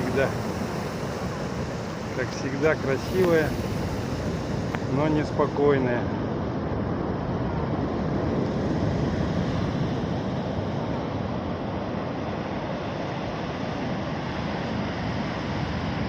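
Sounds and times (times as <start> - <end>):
surf breaking on shore: 0.0 - 11.5.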